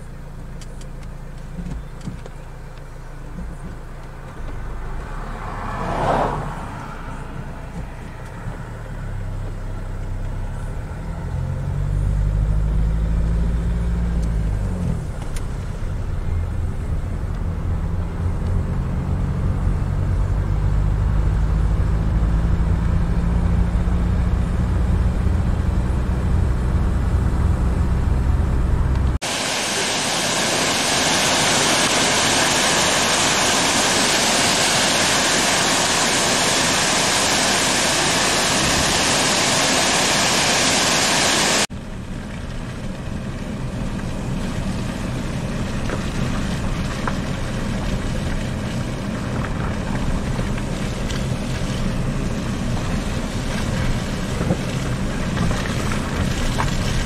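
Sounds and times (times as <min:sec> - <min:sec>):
car engine droning: 0:00.0 - 0:57.0
waterfall rushing: 0:29.2 - 0:41.7.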